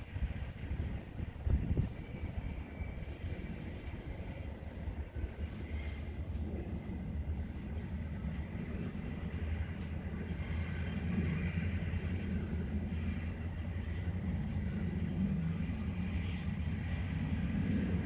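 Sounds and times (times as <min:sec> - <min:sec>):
distant freight train rumbling: 0:00.0 - 0:18.0.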